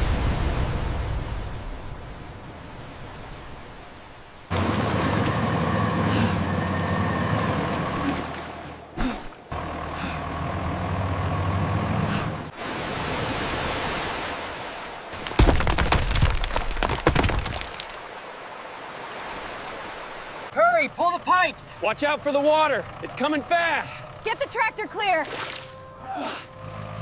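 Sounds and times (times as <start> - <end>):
heavy vehicle engine running: 4.5 - 8.9, 9.5 - 12.5, 20.8 - 24.9, 25.8 - 27.0.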